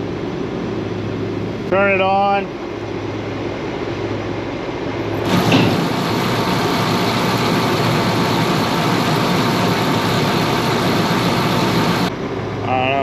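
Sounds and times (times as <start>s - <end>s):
engine running: 5.0s - 12.1s
grain auger rushing: 5.2s - 12.1s.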